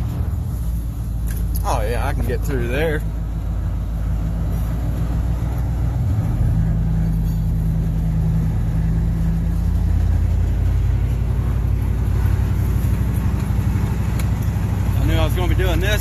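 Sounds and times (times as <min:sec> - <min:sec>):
road and tyre rumble: 0:00.0 - 0:16.0
truck engine droning: 0:00.0 - 0:16.0.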